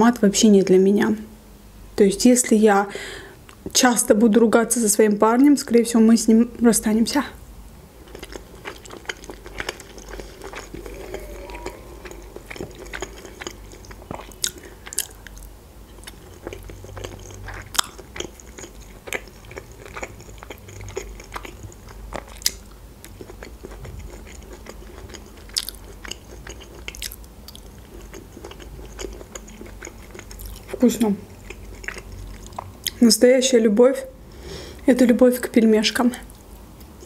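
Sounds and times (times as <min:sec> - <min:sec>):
wet chewing and mouth smacks: 0:08.0 - 0:33.0.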